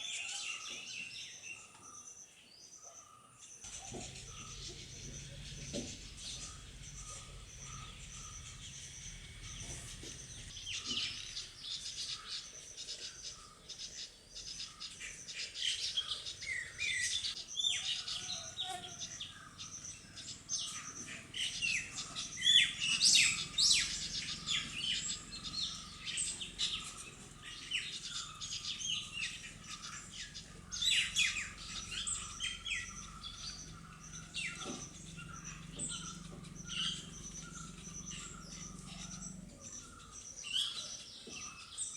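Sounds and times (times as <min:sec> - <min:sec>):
birds chirping: 0:00.4 - 0:41.9.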